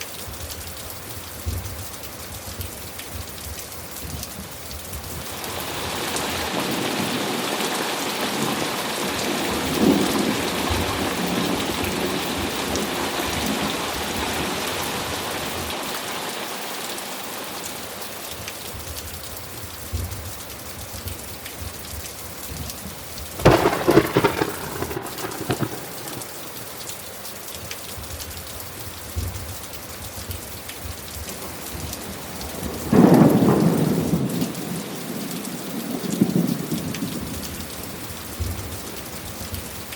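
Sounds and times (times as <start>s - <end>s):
steady rain falling: 0.0s - 39.9s
rolling thunder rumble: 23.4s - 26.8s
sharp thunderclaps: 23.4s - 26.8s.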